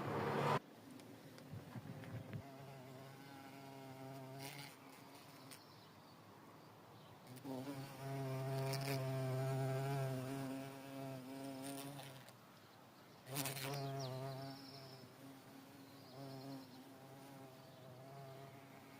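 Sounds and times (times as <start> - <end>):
bee buzzing in flight: 2.3 - 5.3, 7.4 - 12.3.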